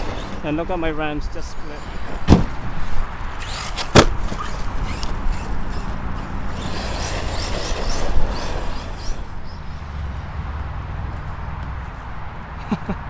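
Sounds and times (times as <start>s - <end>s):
rc truck motor whining: 0.0s - 0.5s, 3.2s - 10.2s
tires over rough dirt: 0.0s - 12.5s.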